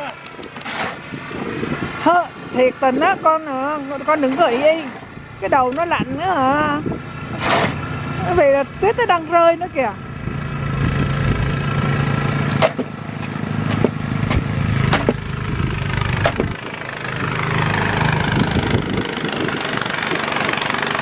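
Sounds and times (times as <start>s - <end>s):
snowblower engine running: 0.0s - 21.0s.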